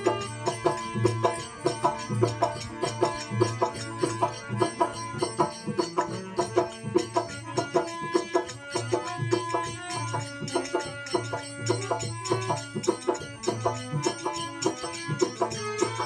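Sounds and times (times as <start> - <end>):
hand drum beat: 0.0 - 16.0
plucked string instrument: 0.0 - 16.0.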